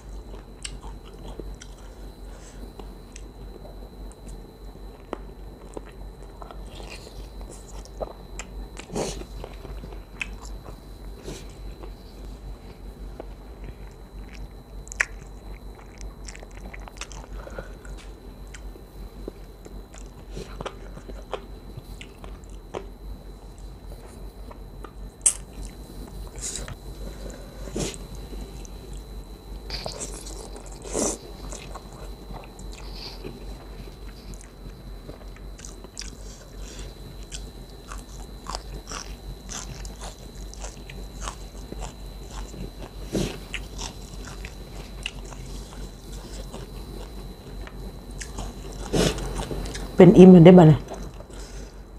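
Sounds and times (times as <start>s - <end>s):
close chewing and mouth smacking: 0.1s - 1.8s, 13.2s - 18.7s, 19.3s - 22.9s, 29.7s - 50.0s
crunchy biting clicks: 14.2s - 18.7s, 34.0s - 36.2s, 37.2s - 50.0s.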